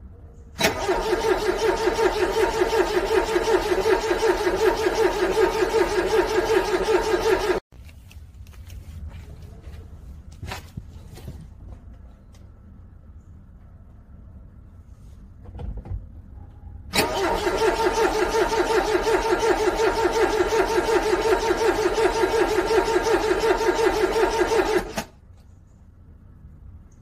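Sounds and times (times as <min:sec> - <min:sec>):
starter motor cranking engine: 0:00.6 - 0:07.6, 0:16.9 - 0:25.2.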